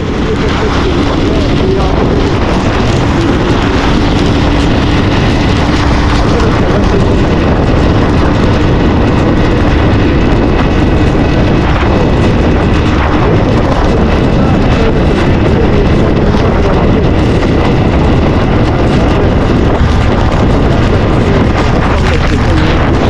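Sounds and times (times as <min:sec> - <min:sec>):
motorcycle engine humming: 0:00.0 - 0:23.0
wind buffeting microphone: 0:00.0 - 0:23.0.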